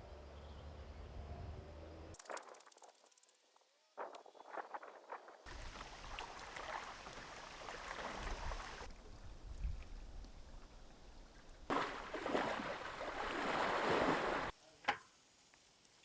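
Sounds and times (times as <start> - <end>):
running water: 4.0 - 8.9, 11.7 - 14.5
wind rumbling on microphone: 8.2 - 11.7.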